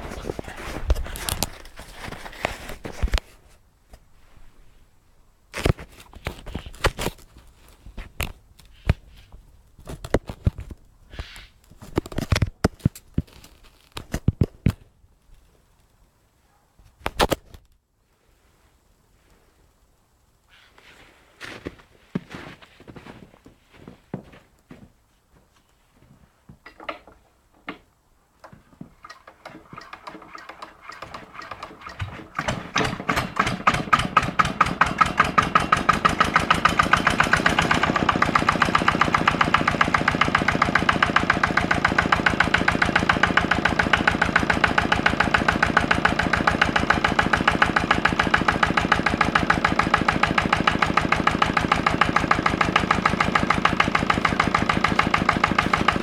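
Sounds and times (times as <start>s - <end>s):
diesel engine starting and running: 29.0s - 56.0s.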